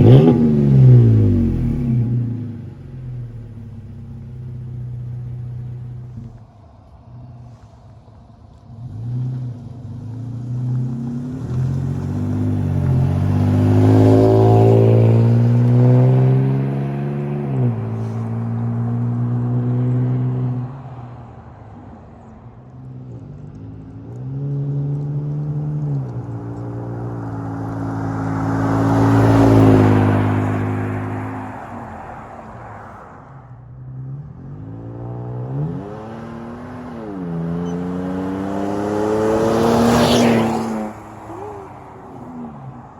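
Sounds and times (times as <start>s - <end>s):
truck exhaust revving: 0.0s - 6.4s.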